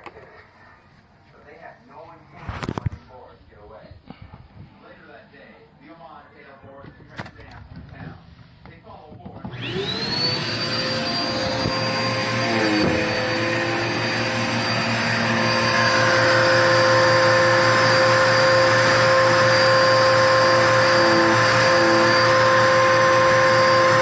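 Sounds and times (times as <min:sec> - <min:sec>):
vacuum cleaner motor whining: 0:09.3 - 0:24.0.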